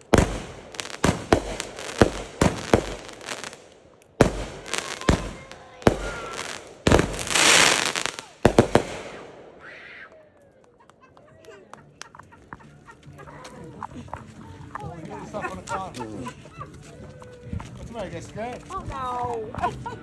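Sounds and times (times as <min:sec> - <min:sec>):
loud hissing rush: 0:00.0 - 0:09.3
fireworks bangs and pops: 0:00.0 - 0:09.7.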